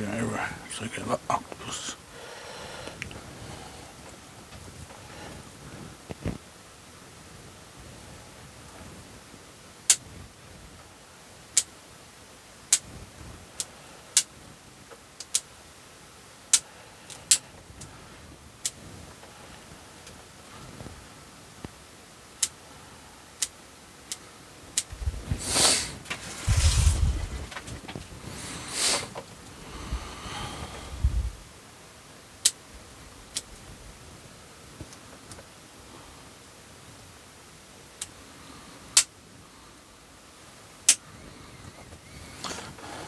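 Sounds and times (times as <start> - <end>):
branches rustling: 24.9 - 30.2.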